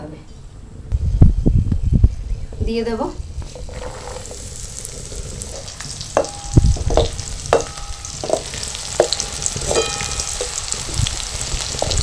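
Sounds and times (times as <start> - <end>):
corn kernels sizzling in oil: 3.4 - 12.0
metal spoon knocking against pan: 6.1 - 11.0.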